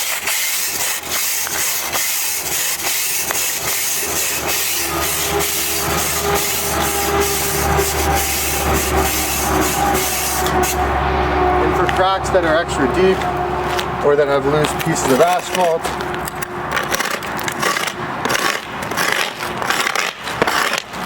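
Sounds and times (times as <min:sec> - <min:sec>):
brush scraping asphalt crack: 0:00.0 - 0:21.0
low engine-like hum: 0:02.4 - 0:19.0.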